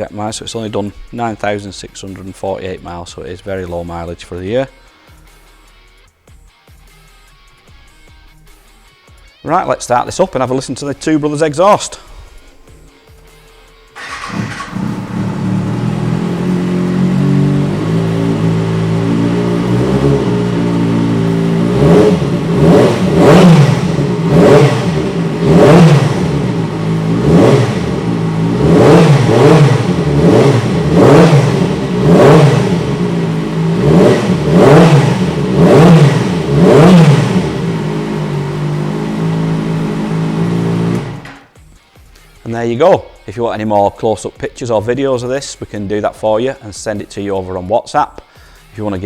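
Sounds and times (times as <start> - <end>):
motorcycle engine revving: 14.0 - 41.5
motorcycle engine starting and idling: 14.0 - 41.6.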